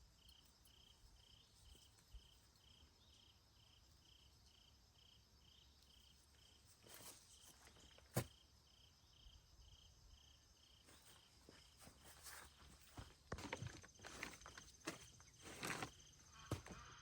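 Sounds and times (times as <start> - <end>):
faint cricket chirping: 0.0 - 17.0
soft rustle: 6.5 - 8.3, 10.8 - 16.9.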